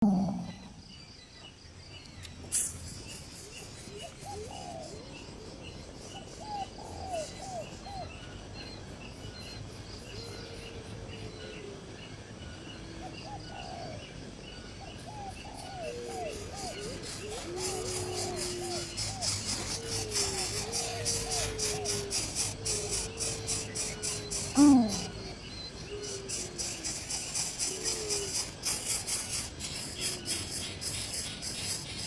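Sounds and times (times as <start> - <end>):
lower curving bird calls: 0.0 - 1.2, 13.0 - 32.0.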